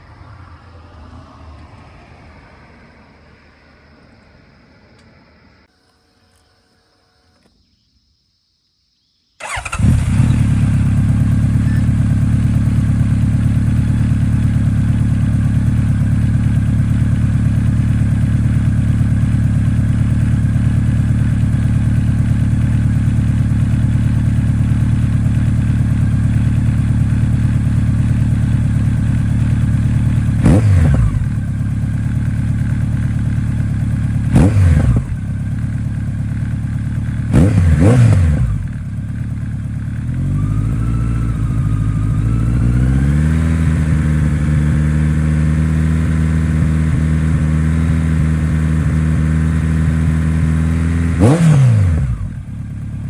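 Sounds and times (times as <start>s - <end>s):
motorcycle engine starting and idling: 9.4s - 53.0s.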